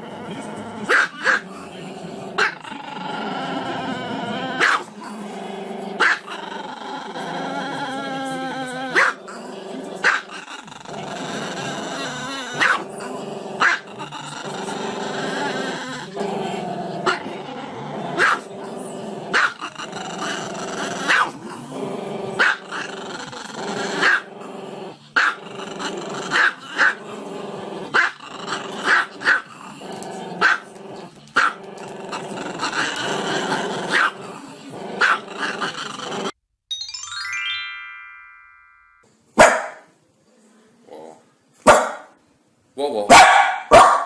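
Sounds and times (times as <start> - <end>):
small dog growling: 0.0 - 36.4, 40.3 - 41.3
dog barking: 0.9 - 1.4, 4.6 - 4.9, 6.0 - 6.3, 9.0 - 9.2, 12.6 - 12.8, 13.6 - 13.8, 18.2 - 18.5, 19.3 - 19.6, 21.1 - 21.4, 22.4 - 22.6, 24.0 - 24.2, 28.9 - 29.4, 30.4 - 30.7, 33.9 - 34.2, 35.0 - 35.2, 39.4 - 39.9, 41.6 - 42.2, 43.1 - 44.0.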